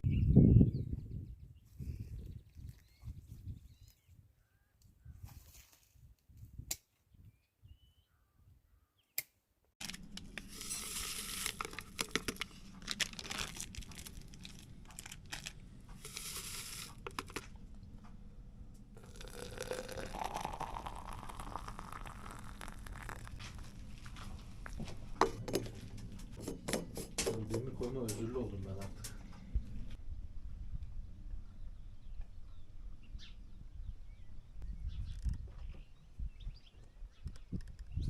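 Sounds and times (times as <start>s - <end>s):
paper crumpling and tearing: 9.8s - 17.4s.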